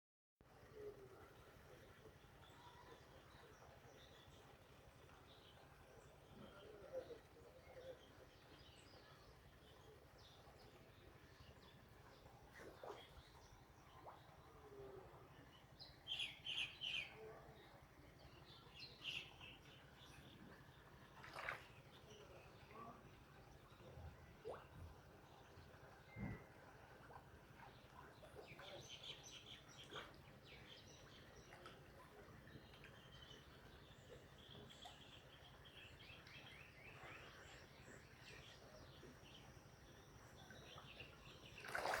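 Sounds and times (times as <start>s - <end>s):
faint bird chirps: 27.6s - 42.0s.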